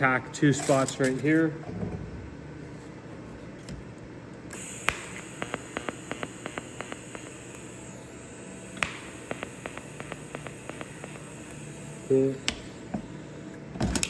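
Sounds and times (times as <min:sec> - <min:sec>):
thin high whine: 0:04.5 - 0:13.6
welding arc hissing: 0:04.5 - 0:13.7
arc ticks and crackles: 0:04.6 - 0:13.5.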